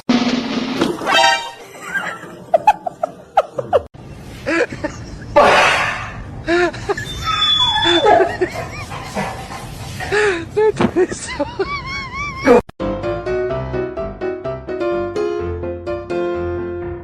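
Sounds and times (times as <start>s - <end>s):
person laughing: 8.0s - 9.2s, 10.1s - 12.7s.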